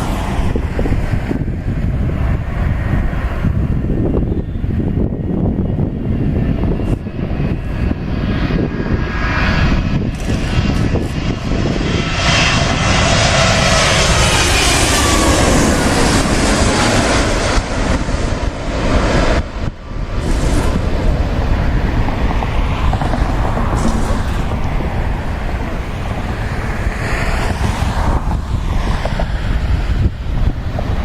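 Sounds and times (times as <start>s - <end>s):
jet engine roar: 0.0s - 31.0s
engine whine falling in pitch: 9.6s - 29.4s.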